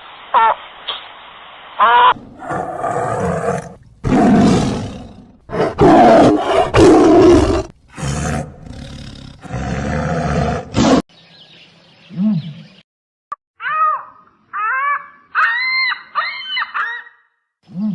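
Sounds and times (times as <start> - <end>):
big cat roaring and growling: 2.2 - 11.0.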